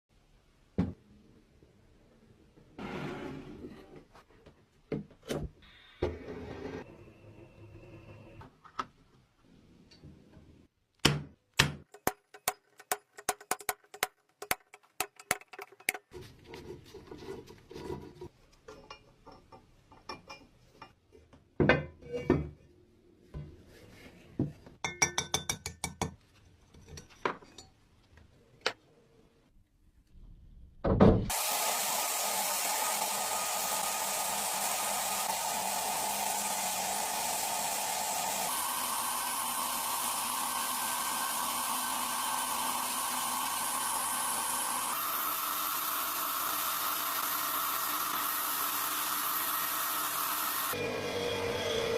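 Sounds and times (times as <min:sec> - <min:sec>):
small hard parts clicking: 0:11.9 - 0:16.1
loud hissing machine: 0:31.3 - 0:51.9.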